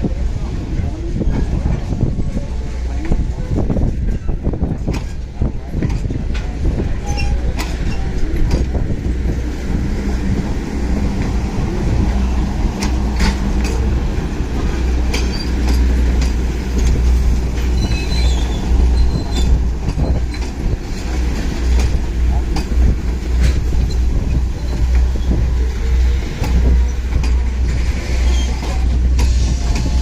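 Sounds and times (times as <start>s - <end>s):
train rolling past: 0.0s - 30.0s
high wheel squeal: 17.7s - 19.6s.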